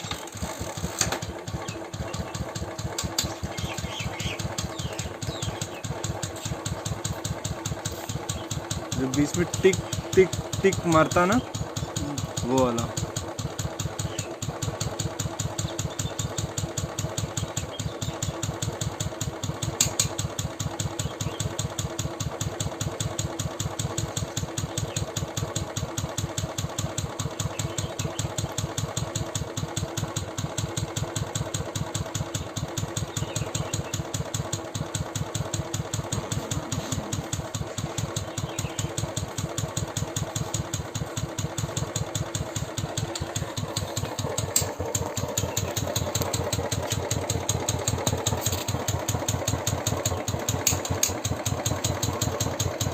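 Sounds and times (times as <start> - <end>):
single-cylinder engine idling: 0.0 - 52.9
sharp click: 19.8 - 20.2.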